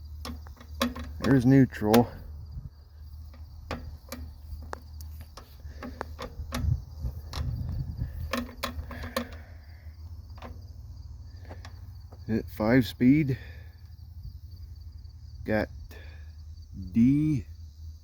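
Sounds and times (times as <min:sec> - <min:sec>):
gear lever clicking and knocking: 0:00.0 - 0:02.4, 0:03.2 - 0:10.7
crickets chirping: 0:00.0 - 0:18.0
steady low hum: 0:00.0 - 0:18.0.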